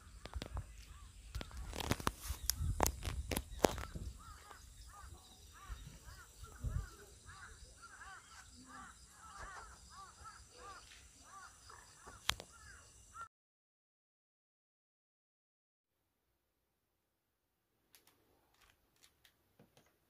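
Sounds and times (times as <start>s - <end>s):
birds calling: 0.0s - 13.3s
handling rustling and clicks: 0.2s - 3.9s.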